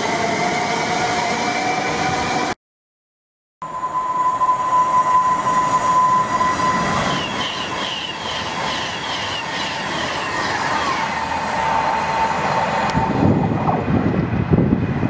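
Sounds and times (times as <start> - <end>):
electric train high whine: 3.6 - 15.0
train carriages rushing by: 3.6 - 15.0.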